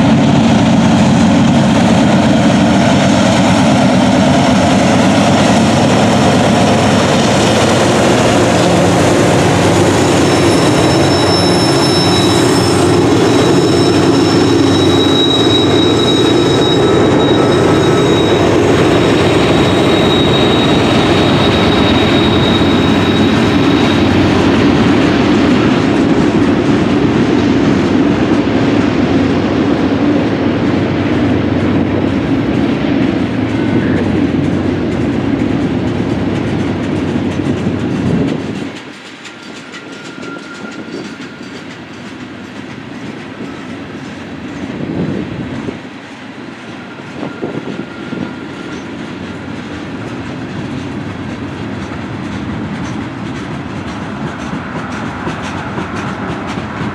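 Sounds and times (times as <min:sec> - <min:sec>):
freight train wheels clattering: 0:00.0 - 0:56.9
faint wheel squeals: 0:09.5 - 0:24.4, 0:39.2 - 0:42.0.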